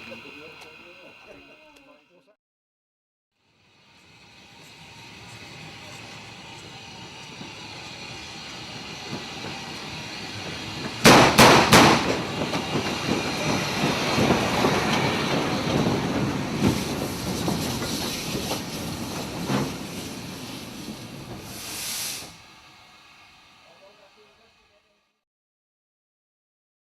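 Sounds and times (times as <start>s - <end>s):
train rumbling and clattering: 0.0s - 1.9s, 3.6s - 24.8s
railway detonators exploding: 9.0s - 19.0s
short hiss: 21.4s - 24.5s.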